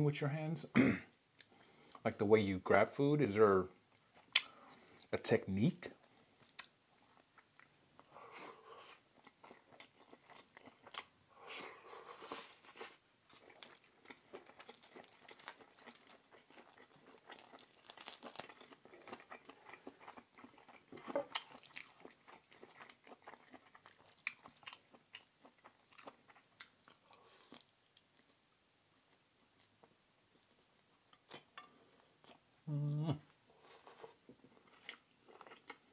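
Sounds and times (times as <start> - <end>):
man chewing food: 1.3 - 2.1, 3.8 - 5.1, 6.0 - 35.9
food crunching: 9.0 - 11.2, 12.1 - 28.4, 33.6 - 35.9.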